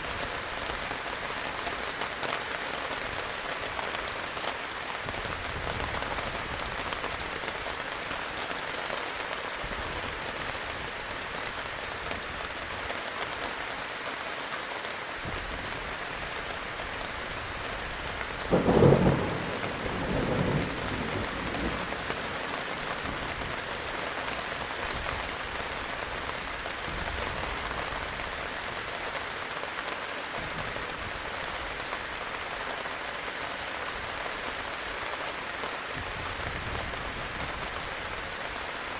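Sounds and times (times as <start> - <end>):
heavy rain: 0.0 - 38.9
thunder clap and rumble: 18.4 - 23.6.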